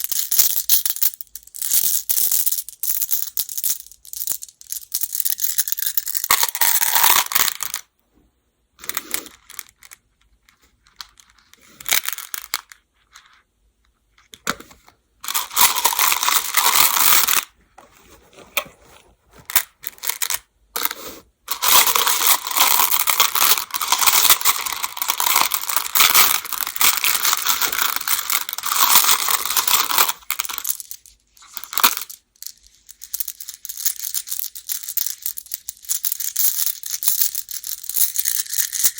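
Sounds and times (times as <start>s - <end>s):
game stones clattering: 15.3s - 17.5s, 21.5s - 38.9s.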